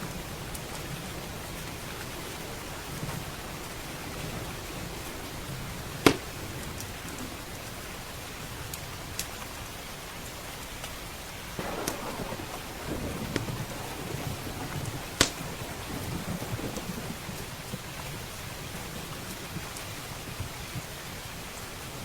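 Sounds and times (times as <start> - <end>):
steady rain: 0.0 - 22.0
wood fire crackling: 11.6 - 19.6
thunder rumbling: 11.6 - 19.8.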